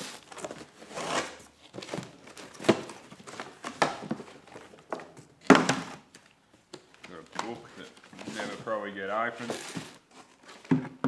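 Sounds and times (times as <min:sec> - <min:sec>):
packaging rustling and crinkling: 0:00.0 - 0:05.1, 0:07.0 - 0:10.8.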